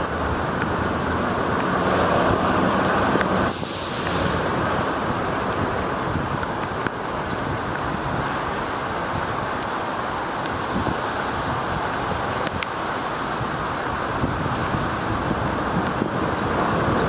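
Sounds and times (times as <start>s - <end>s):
traffic and wet-road noise: 0.0s - 17.0s
short sharp hiss: 3.4s - 4.4s.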